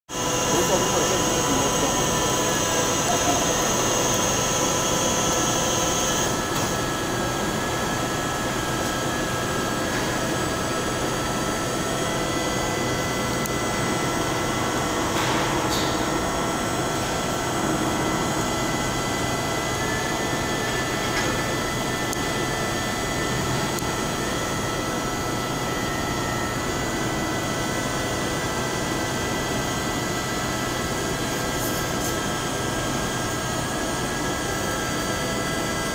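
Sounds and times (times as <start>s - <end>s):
milling machine humming: 0.1s - 35.9s
high motor whines: 0.2s - 7.2s.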